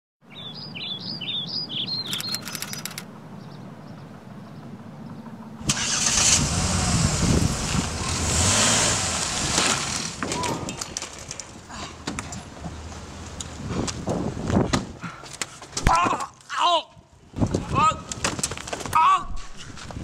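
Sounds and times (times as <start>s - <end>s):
bird chirping: 0.2s - 5.3s
short clicks: 2.0s - 3.1s
loud rushing noise with rumble: 5.6s - 10.2s.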